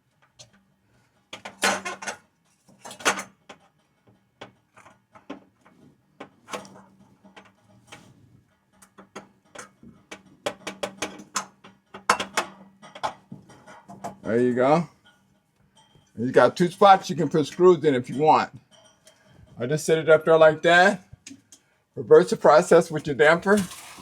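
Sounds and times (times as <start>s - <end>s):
metal clanks and scrapes: 12.8s - 14.3s, 18.6s - 19.6s, 23.3s - 24.0s.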